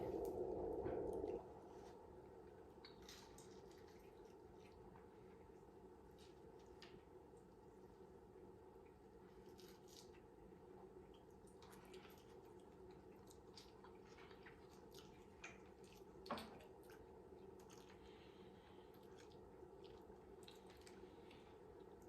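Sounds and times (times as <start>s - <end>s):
person chewing: 11.0s - 22.0s.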